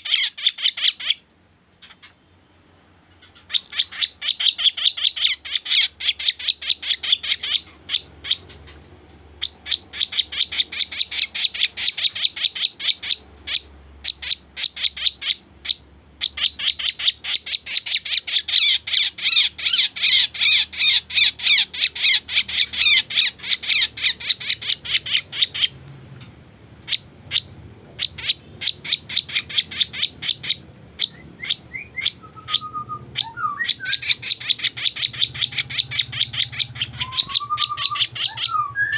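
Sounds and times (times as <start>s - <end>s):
bird lure call chattering: 28.0s - 38.9s
whistled notes: 37.0s - 38.9s.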